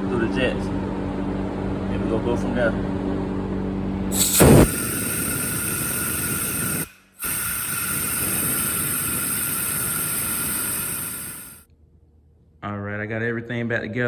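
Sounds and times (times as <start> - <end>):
compressed air hissing with whistle: 4.1 - 11.6.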